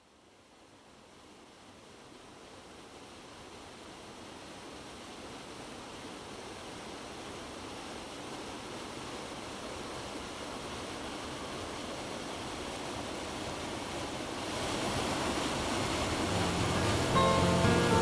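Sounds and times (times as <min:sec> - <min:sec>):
plucked guitar notes: 0:16.0 - 0:18.0.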